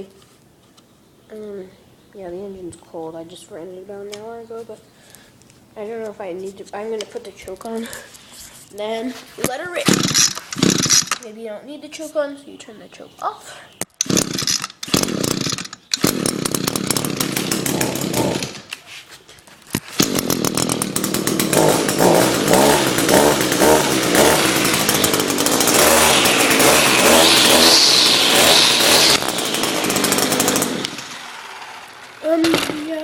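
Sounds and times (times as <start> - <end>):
string trimmer engine revving: 9.9 - 11.2, 14.0 - 18.7, 19.9 - 33.0
high whine: 21.9 - 32.2.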